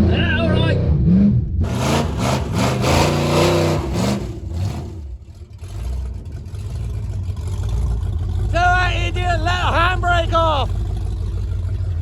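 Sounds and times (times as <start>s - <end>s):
small car engine revving under load: 0.9s - 6.2s.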